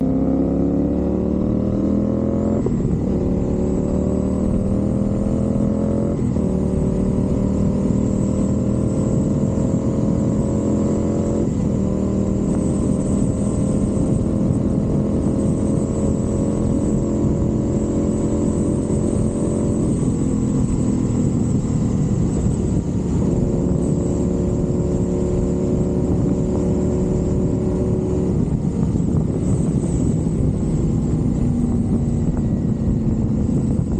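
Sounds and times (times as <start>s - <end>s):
motorcycle accelerating through gears: 0.0s - 33.9s.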